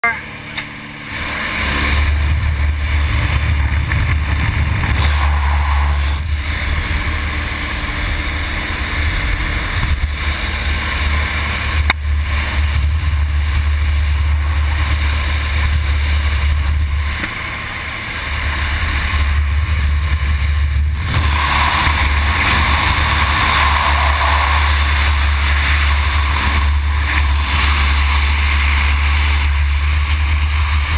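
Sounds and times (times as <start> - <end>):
heavy wind buffeting microphone: 0.3 - 30.9.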